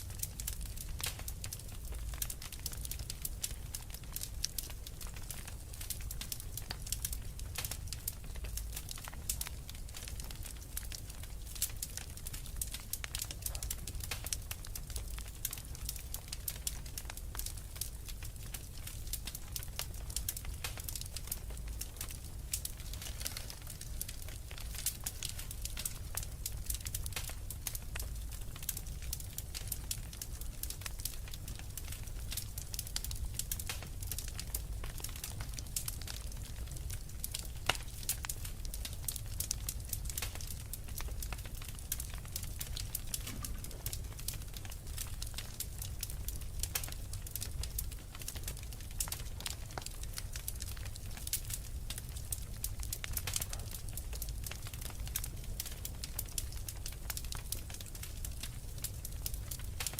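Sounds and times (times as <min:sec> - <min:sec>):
fire crackling and popping: 0:00.0 - 0:59.9
low steady rumble: 0:41.3 - 0:47.8.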